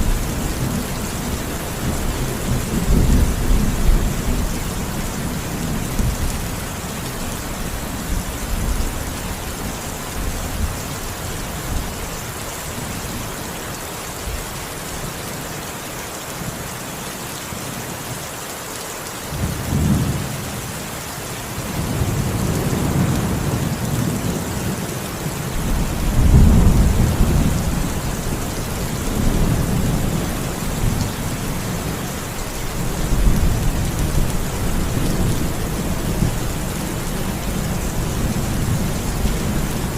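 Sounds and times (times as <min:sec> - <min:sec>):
heavy rain hissing: 0:00.0 - 0:39.9
thunder rumbling: 0:25.6 - 0:32.0.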